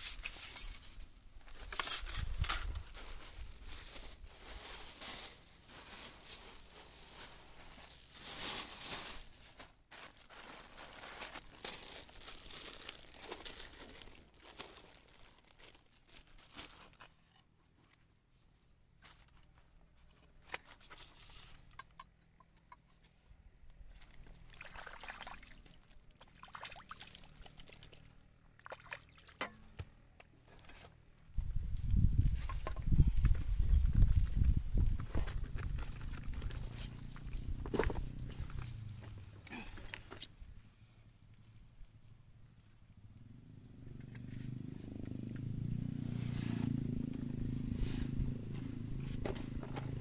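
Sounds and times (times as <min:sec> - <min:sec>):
water trickling and sloshing: 0:24.0 - 0:29.4.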